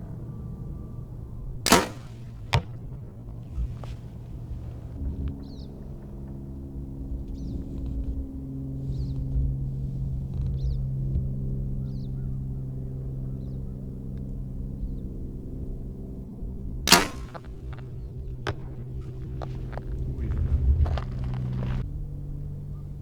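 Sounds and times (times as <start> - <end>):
faint arrow smack: 1.7 - 4.1, 16.9 - 21.8
bowstring crack: 1.7 - 4.7, 16.9 - 21.8.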